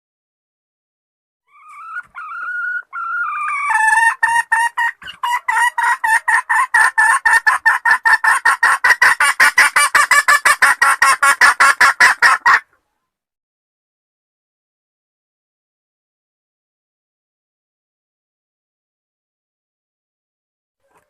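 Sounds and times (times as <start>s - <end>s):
hen clucking rapidly: 1.5s - 12.7s.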